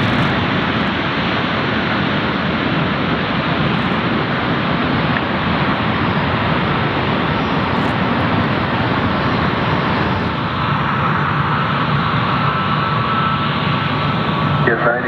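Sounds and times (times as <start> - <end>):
jet airliner engine rush: 0.0 - 15.0
thin whine: 3.4 - 15.0.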